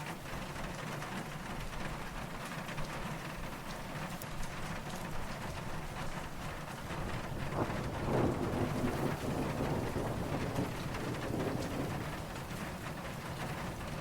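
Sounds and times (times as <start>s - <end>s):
steady rain falling: 0.0s - 14.0s
distant thunder rumble: 6.3s - 14.0s.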